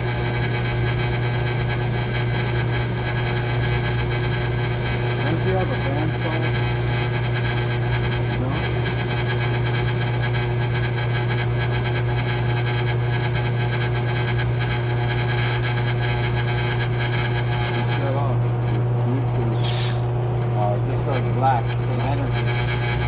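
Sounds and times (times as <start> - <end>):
machine humming: 19.2 - 23.0.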